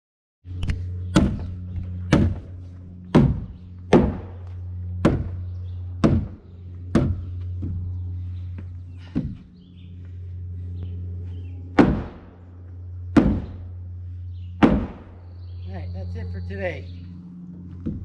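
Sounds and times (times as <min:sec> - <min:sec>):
low hum: 0:00.5 - 0:18.0
mallet striking timber: 0:01.1 - 0:01.4, 0:02.1 - 0:02.5, 0:03.1 - 0:04.3, 0:05.0 - 0:05.4, 0:06.0 - 0:07.3, 0:11.8 - 0:12.3, 0:13.2 - 0:13.6, 0:14.6 - 0:15.1.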